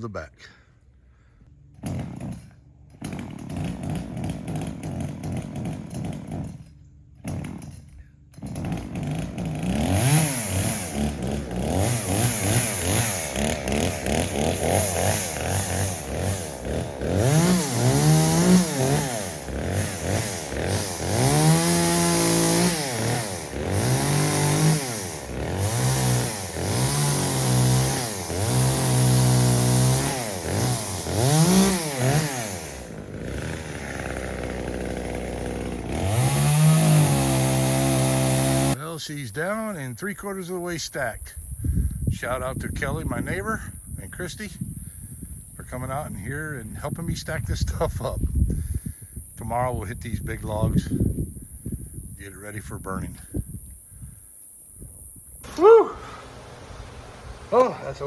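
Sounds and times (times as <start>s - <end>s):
chainsaw cutting wood: 1.7s - 38.8s, 55.4s - 58.0s.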